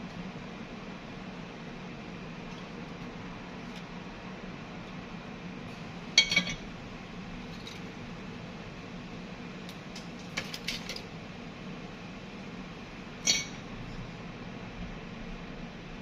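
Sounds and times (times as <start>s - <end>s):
steady low hum: 0.0s - 16.0s
metal tools clinking on workbench: 13.2s - 13.6s.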